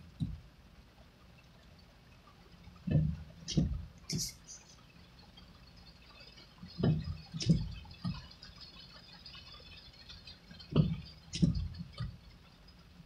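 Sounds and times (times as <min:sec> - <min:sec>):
rain hissing on car: 0:00.0 - 0:13.0
dull thumps: 0:00.2 - 0:00.4, 0:02.8 - 0:04.3, 0:06.8 - 0:08.2, 0:10.7 - 0:12.2.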